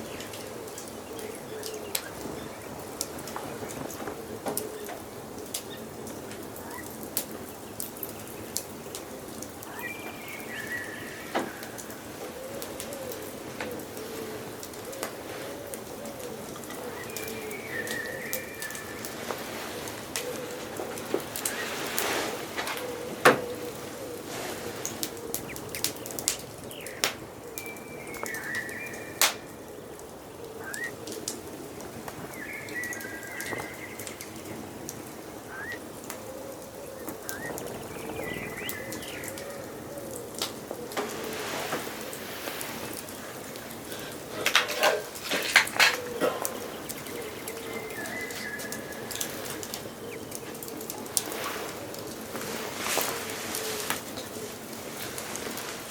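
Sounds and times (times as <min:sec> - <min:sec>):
bird cooing: 0:00.0 - 0:02.6, 0:03.5 - 0:07.0, 0:09.7 - 0:54.7
birds trilling: 0:00.0 - 0:41.0, 0:42.9 - 0:51.4
wood fire crackling: 0:00.0 - 0:55.9
birdsong whistles: 0:26.8 - 0:29.5, 0:30.6 - 0:31.0, 0:35.5 - 0:35.8, 0:37.0 - 0:39.4
bird rising call: 0:30.4 - 0:31.0, 0:35.4 - 0:40.4.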